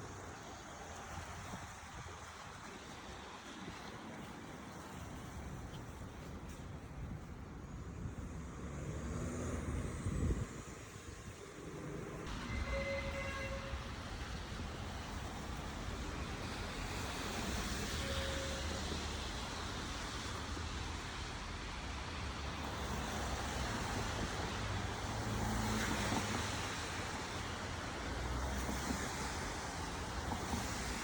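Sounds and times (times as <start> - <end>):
engine and tyre rumble: 0.0 - 18.2
cars passing: 7.4 - 31.0.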